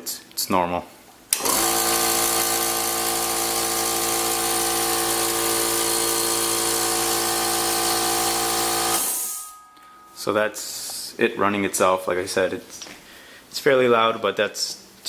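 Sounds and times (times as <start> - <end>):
air compressor humming: 1.3 - 9.6.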